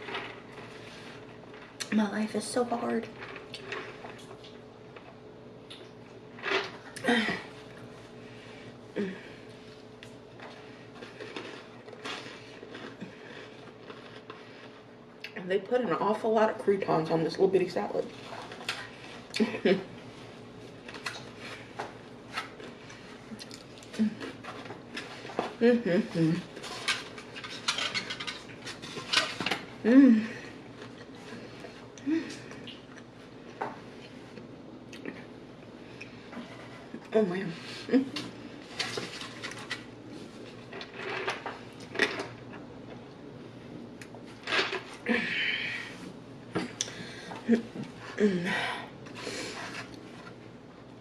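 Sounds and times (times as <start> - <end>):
crisp chewing crunches: 10.4 - 15.4.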